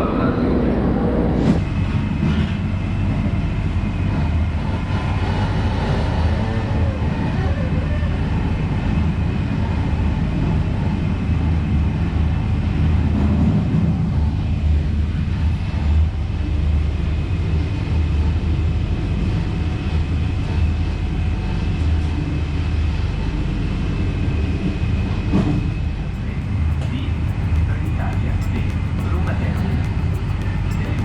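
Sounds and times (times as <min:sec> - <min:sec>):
train rumbling on rails: 0:00.0 - 0:31.0
faint high whine: 0:14.2 - 0:31.0.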